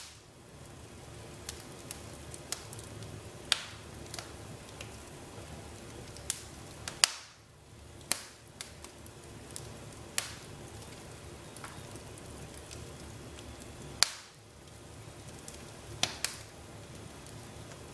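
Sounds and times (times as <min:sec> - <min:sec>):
wood fire crackling: 0:00.0 - 0:17.9.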